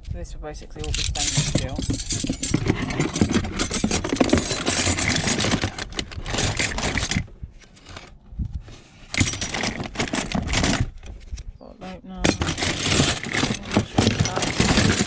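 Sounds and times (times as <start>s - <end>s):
metal utensils clattering: 0.8s - 7.3s, 9.1s - 11.1s, 12.2s - 15.0s.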